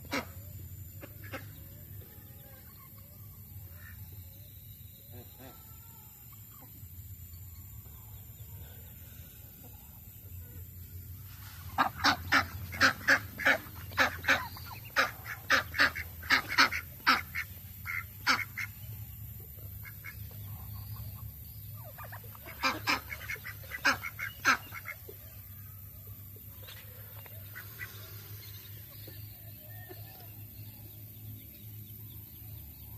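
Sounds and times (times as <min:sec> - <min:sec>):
ducks quacking: 0:00.0 - 0:01.8, 0:11.6 - 0:25.4, 0:26.6 - 0:29.2.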